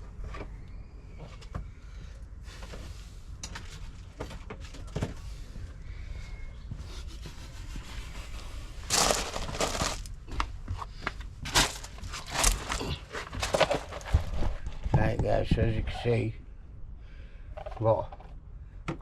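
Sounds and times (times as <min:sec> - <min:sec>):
plastic crackling: 0:08.9 - 0:10.2, 0:11.5 - 0:14.2.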